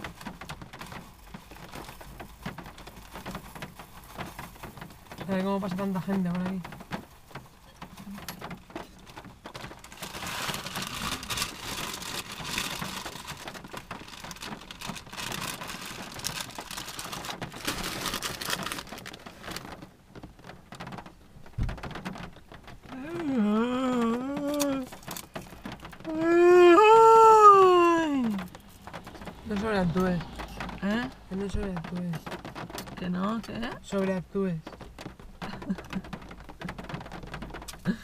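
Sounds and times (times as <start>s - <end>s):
rain on a car roof: 0.0s - 38.0s
person wailing: 22.9s - 24.9s, 26.1s - 28.5s.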